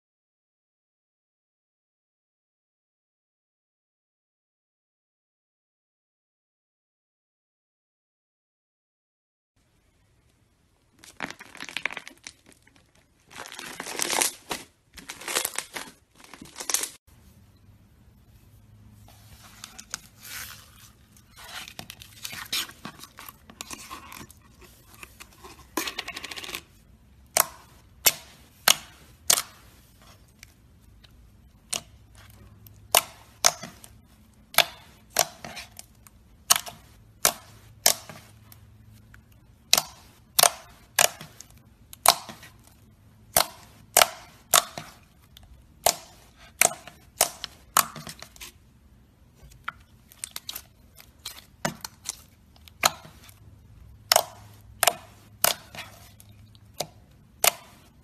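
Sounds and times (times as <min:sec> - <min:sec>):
slime squishing rustle: 0:10.8 - 0:25.8, 0:26.6 - 0:58.0.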